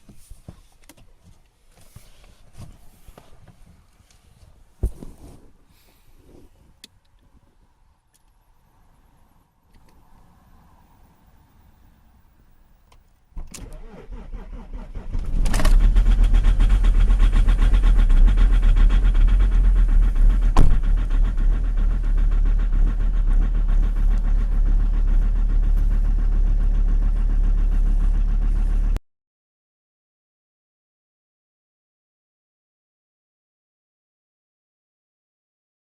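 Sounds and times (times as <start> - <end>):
diesel engine idling: 15.8 - 29.0.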